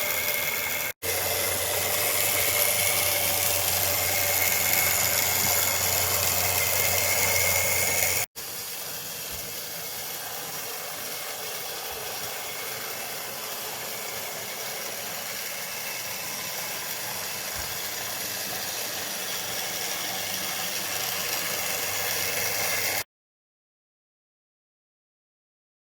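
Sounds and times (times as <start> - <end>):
model locomotive motor and gears: 0.0 - 23.1.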